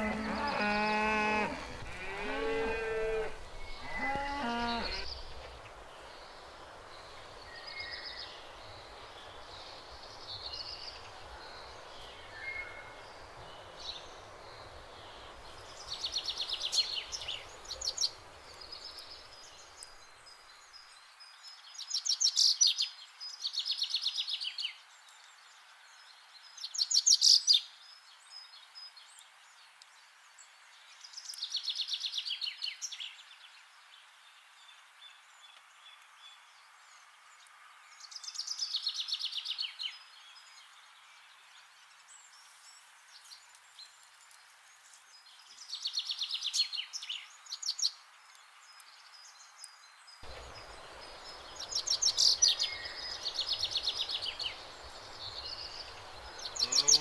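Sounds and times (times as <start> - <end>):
cow mooing: 0.0 - 5.1, 56.6 - 57.0
songbirds trilling: 0.0 - 20.6, 50.2 - 57.0.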